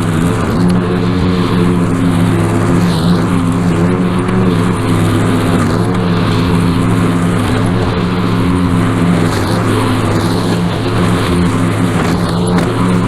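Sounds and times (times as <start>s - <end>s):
small gasoline engine running: 0.0s - 13.0s.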